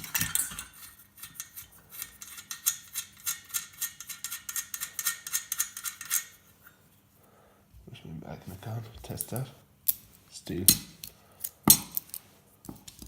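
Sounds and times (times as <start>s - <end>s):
ratchet spanner clicking: 0.1s - 6.4s.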